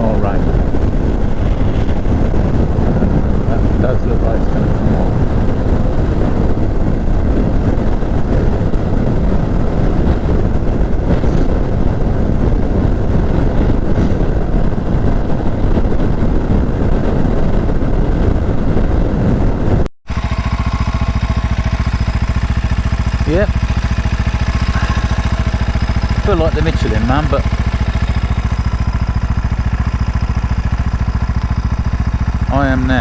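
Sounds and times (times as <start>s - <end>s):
wind noise: 0.0s - 33.0s
road noise: 20.1s - 32.3s
motorcycle engine rumbling: 20.1s - 33.0s.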